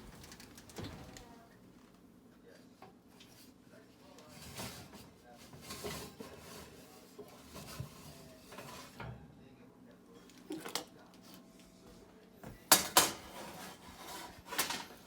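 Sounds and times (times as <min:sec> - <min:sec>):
kitchenware handling noises: 0:04.2 - 0:09.2, 0:12.4 - 0:15.0
metal tray clanking: 0:12.7 - 0:15.0.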